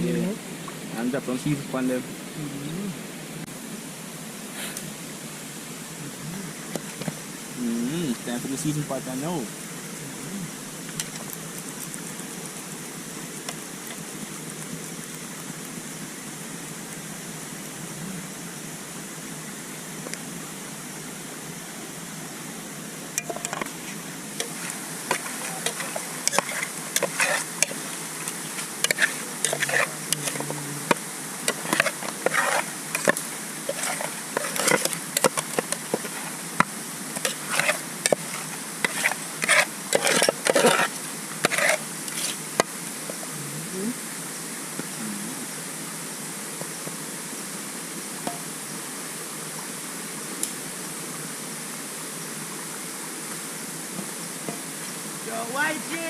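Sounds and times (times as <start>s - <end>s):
waterfall rushing: 12.4s - 43.0s, 54.2s - 56.0s
hands and utensil on fish: 23.2s - 42.8s.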